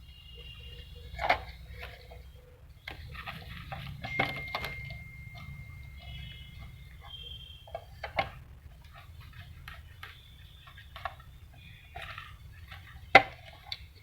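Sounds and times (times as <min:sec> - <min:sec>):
low steady hum: 0:00.0 - 0:14.0
plastic and metal parts clicking: 0:01.0 - 0:14.0.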